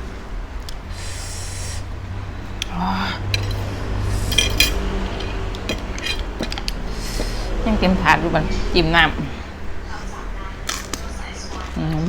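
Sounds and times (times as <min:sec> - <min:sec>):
steady low hum: 0:00.0 - 0:12.0
cutlery clinking on plates: 0:02.6 - 0:07.4.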